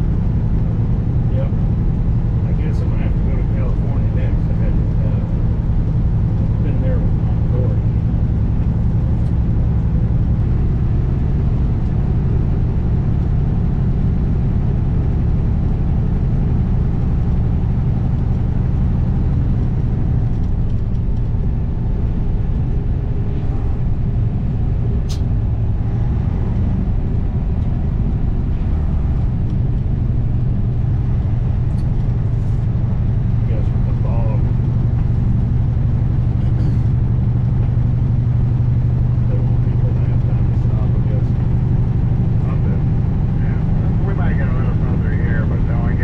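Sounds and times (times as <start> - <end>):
road noise: 0.0 - 46.0
truck diesel engine drone: 0.0 - 46.0
sharp click: 25.1 - 25.3.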